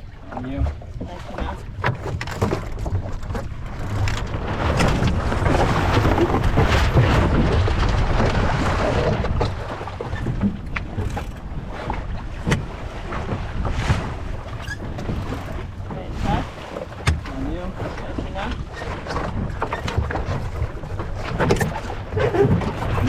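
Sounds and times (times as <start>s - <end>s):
wind and water rushing: 0.0s - 23.0s
boat fittings clicking and knocking: 1.4s - 6.8s, 16.8s - 17.4s, 19.1s - 23.0s.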